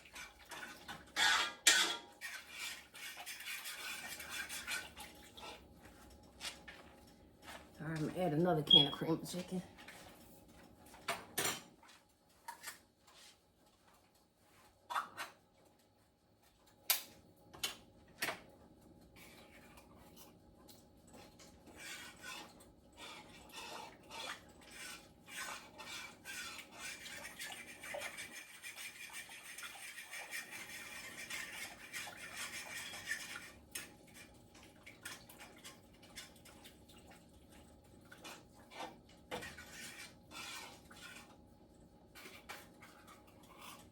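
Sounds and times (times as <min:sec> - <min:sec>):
scraping and stirring in pot: 0:00.0 - 0:15.4, 0:17.6 - 0:43.9
metal utensils clinking on pot: 0:00.2 - 0:04.8.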